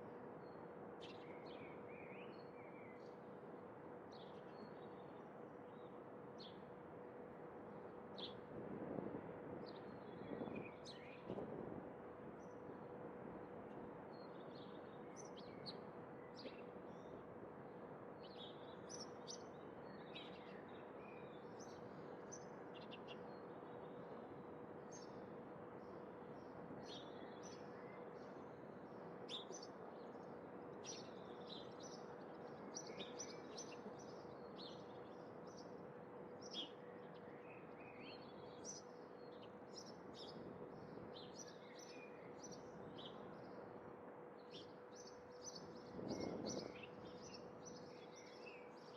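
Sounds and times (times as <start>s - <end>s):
small birds chirping: 29.3s - 35.8s, 44.4s - 48.9s.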